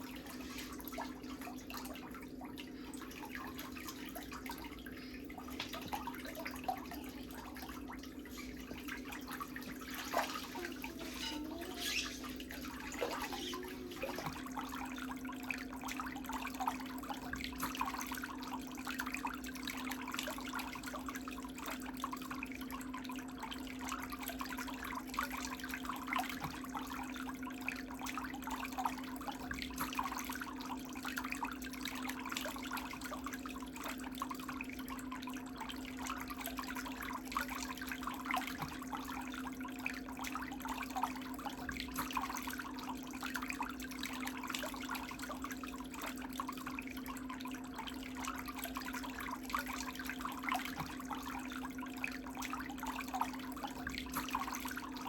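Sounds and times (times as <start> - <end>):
water splashing and trickling: 0.0 - 55.0.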